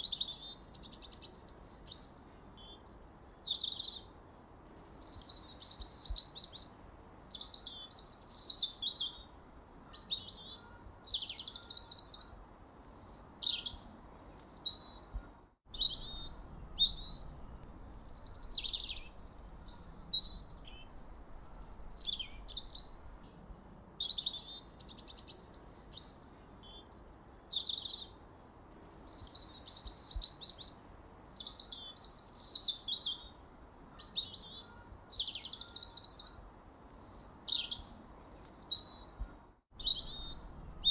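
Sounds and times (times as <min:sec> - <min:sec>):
faint background hiss: 0:00.0 - 0:40.9
birds chirping and trilling: 0:15.8 - 0:23.4, 0:39.8 - 0:40.9.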